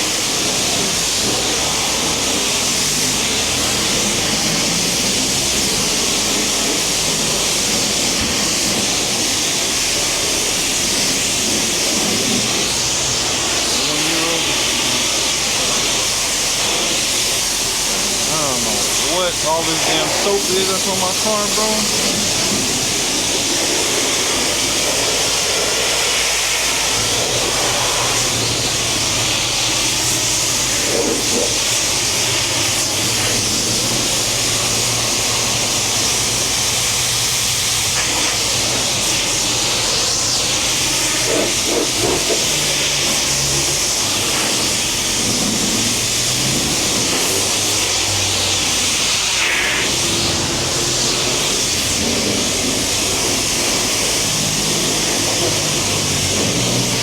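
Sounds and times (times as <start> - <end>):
pressure washer water spray: 0.0 - 57.0.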